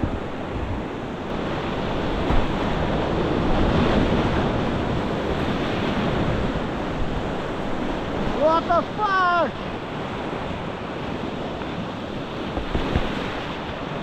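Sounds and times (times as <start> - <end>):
river rapids rushing: 6.6 - 11.4.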